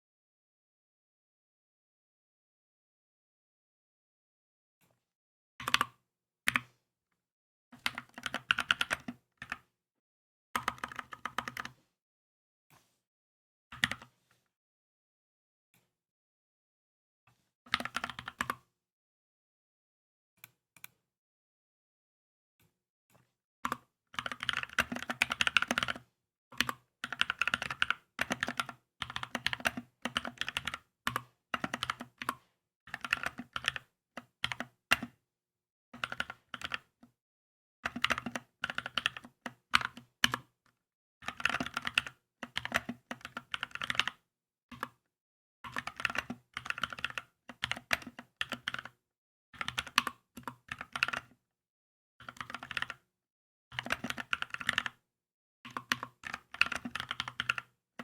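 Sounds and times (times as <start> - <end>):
mechanical keyboard typing: 7.9 - 9.6, 24.2 - 26.0, 26.6 - 35.1, 36.0 - 36.9, 37.9 - 40.5, 41.2 - 45.0, 45.7 - 49.0, 49.6 - 51.4, 52.2 - 53.0, 53.7 - 55.0, 55.7 - 57.7.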